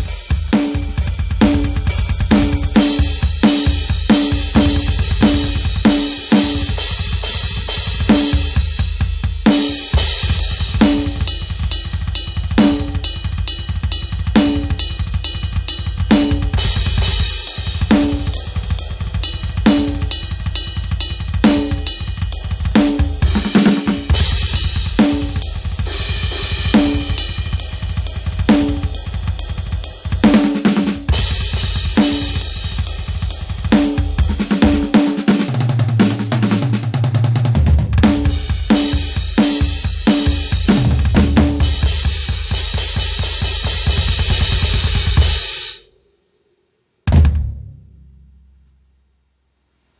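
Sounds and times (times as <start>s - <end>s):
crashing cymbals: 0.0s - 8.8s, 9.5s - 34.9s
fast bass drum strokes: 0.0s - 45.8s, 47.1s - 48.6s.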